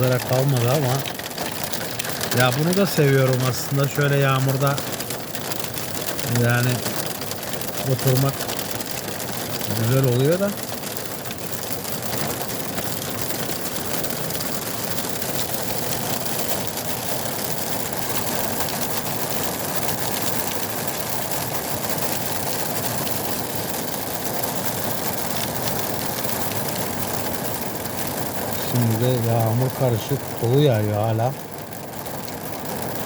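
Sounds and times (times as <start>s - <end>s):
heavy rain hissing: 0.0s - 5.0s, 6.2s - 7.1s, 7.8s - 8.5s, 9.6s - 10.6s, 28.3s - 31.4s
hailstones ticking: 0.0s - 33.0s.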